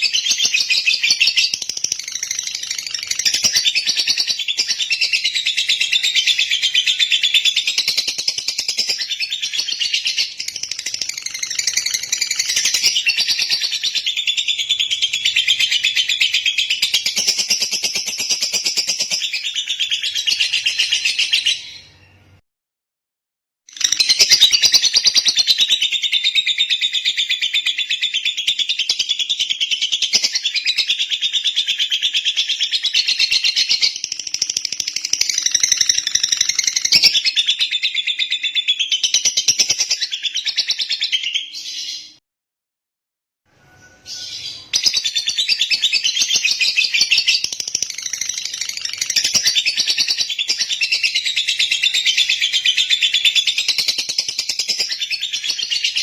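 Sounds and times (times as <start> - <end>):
lovebird chattering trill: 44.1 - 56.0.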